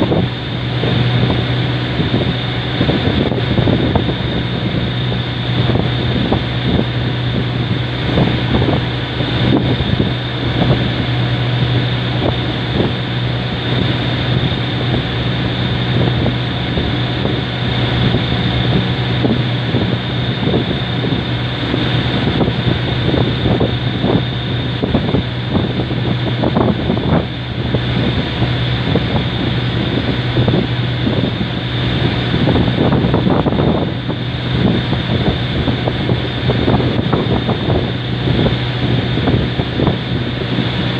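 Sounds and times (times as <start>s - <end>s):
boat engine droning: 0.0s - 40.9s
wind buffeting microphone: 0.0s - 40.9s.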